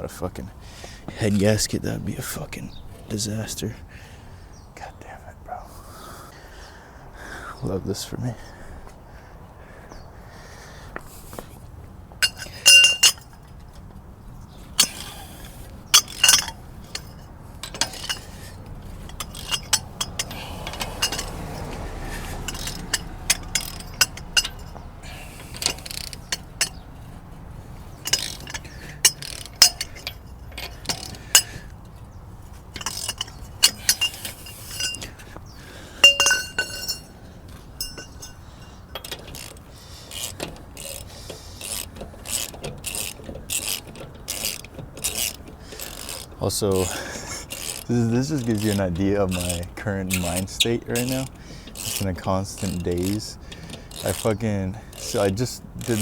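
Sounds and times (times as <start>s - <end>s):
metal tools clinking: 12.2s - 56.0s.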